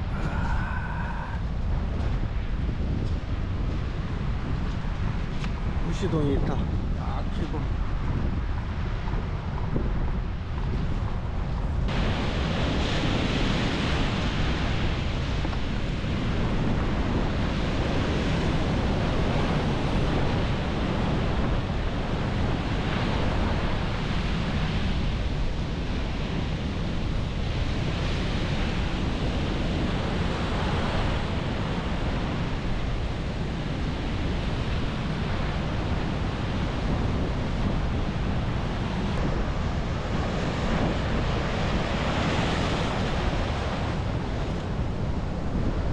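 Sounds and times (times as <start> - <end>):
wind rumbling on microphone: 0.0 - 45.9
surf breaking on beach: 10.6 - 45.9.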